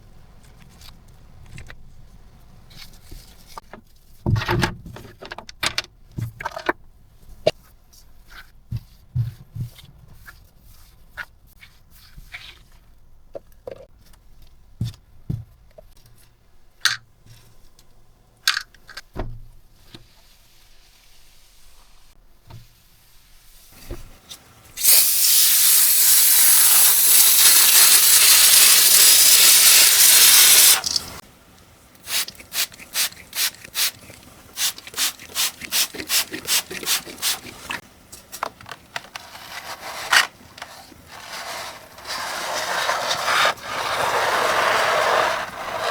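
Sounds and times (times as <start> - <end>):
loud steady hiss: 24.8 - 31.2.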